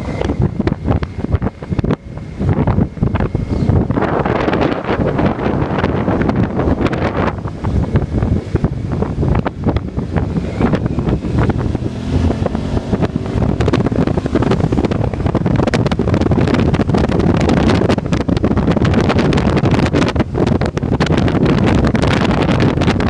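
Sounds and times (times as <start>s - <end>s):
motorcycle engine running: 0.0s - 23.0s
wind buffeting microphone: 0.0s - 23.0s.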